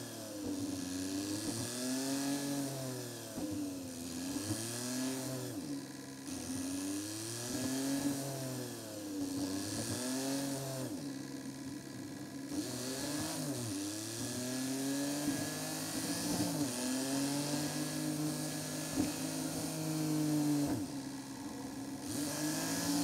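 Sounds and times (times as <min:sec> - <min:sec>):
car engine accelerating: 0:12.5 - 0:23.0.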